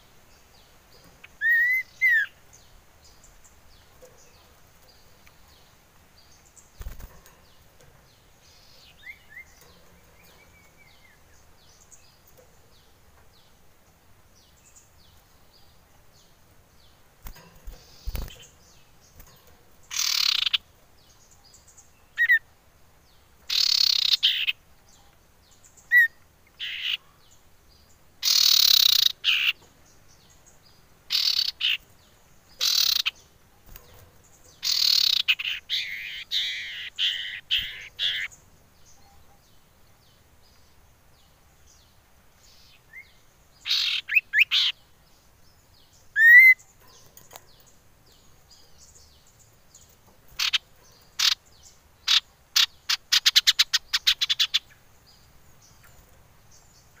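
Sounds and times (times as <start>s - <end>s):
bird harsh chattering calls: 1.2s - 2.4s, 19.8s - 20.7s, 22.2s - 22.4s, 23.5s - 24.6s, 25.9s - 27.0s, 28.2s - 29.6s, 31.1s - 31.9s, 32.6s - 33.9s, 34.6s - 38.4s, 43.6s - 44.8s, 46.1s - 47.1s, 50.3s - 54.8s.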